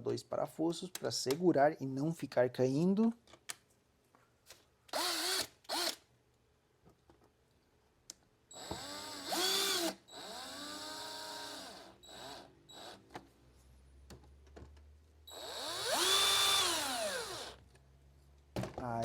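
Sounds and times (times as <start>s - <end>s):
electric screwdriver motor whine: 5.0s - 6.0s, 8.6s - 13.0s, 15.3s - 17.6s.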